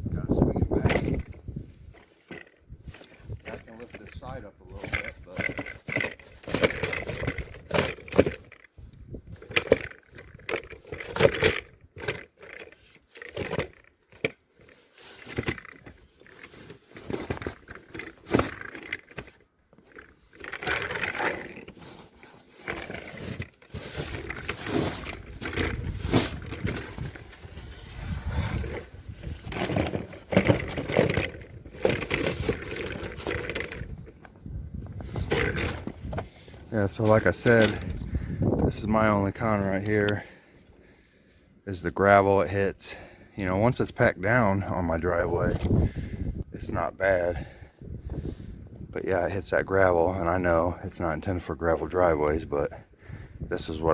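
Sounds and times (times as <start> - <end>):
snow shovel scraping through snow: 21.3 - 29.9.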